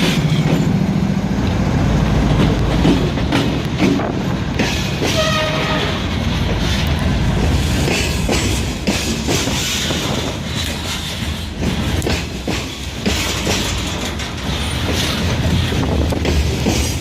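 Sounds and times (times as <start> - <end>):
train rumbling past: 0.0 - 17.0
wheels clicking over rail joints: 0.0 - 17.0.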